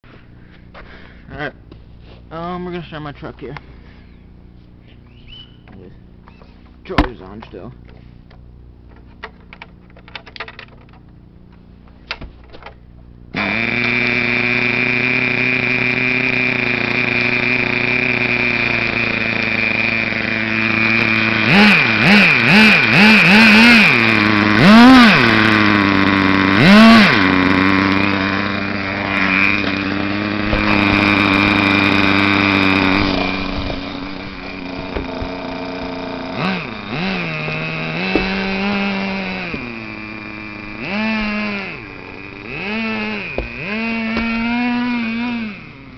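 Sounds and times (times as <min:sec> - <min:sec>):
small engine idling and revving: 0:13.3 - 0:45.9.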